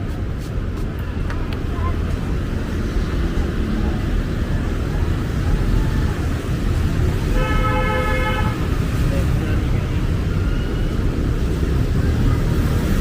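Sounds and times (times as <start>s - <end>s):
urban traffic rumble: 0.0s - 13.0s
car horn: 7.3s - 8.8s.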